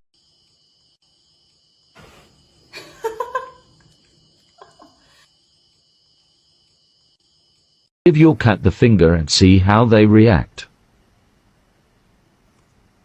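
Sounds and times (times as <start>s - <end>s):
crickets chirping: 0.2s - 9.8s.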